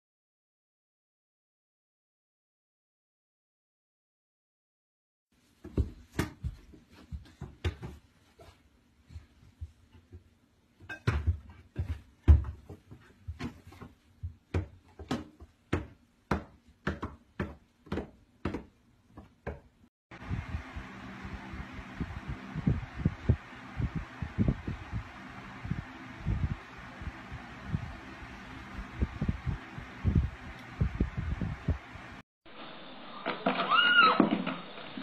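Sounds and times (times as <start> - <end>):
electric fan whooshing: 20.1 - 32.2.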